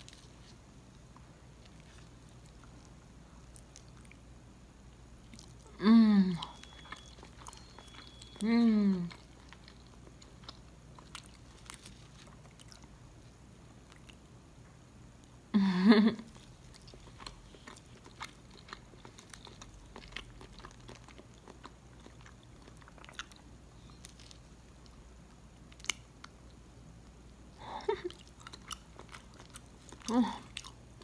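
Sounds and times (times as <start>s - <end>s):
person chewing sticky food: 0.0s - 4.3s, 5.2s - 14.3s, 16.2s - 26.6s, 27.8s - 31.0s
hummed vocal sound: 5.7s - 6.4s.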